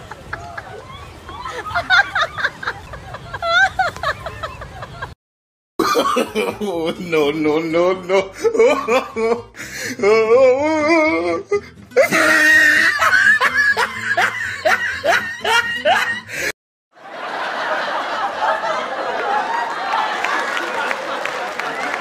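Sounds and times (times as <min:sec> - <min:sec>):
comic laughter sound effect: 0:05.8 - 0:16.4.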